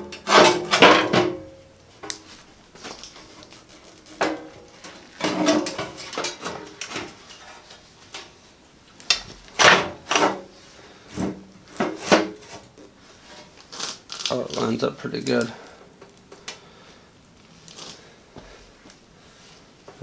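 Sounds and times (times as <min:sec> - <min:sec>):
metal pieces clanking on sheet metal: 0:00.0 - 0:01.6, 0:03.0 - 0:08.3, 0:09.1 - 0:10.4.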